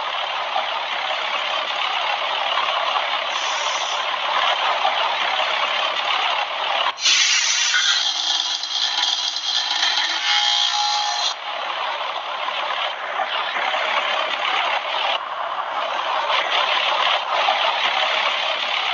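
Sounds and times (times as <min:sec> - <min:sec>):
heat pump rushing hiss with rattling: 0:03.3 - 0:04.2.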